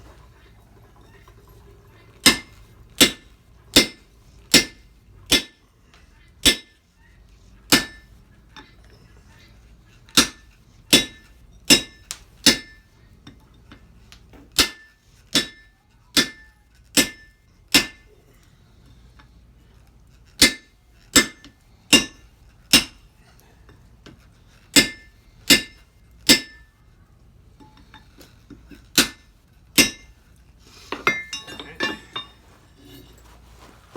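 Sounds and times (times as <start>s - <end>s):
hammer striking iron on anvil: 2.2s - 5.6s, 6.4s - 6.8s, 7.7s - 8.1s, 10.2s - 12.8s, 14.6s - 18.1s, 20.4s - 23.0s, 24.8s - 26.7s, 29.0s - 30.2s, 31.0s - 32.3s
light metal clinks: 30.9s - 33.8s.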